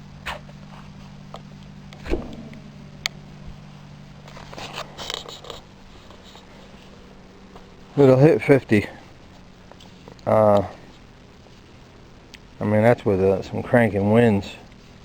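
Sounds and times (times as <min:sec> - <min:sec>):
steady low hum: 0:00.0 - 0:15.0
sharp clicks and knocks: 0:01.3 - 0:06.3.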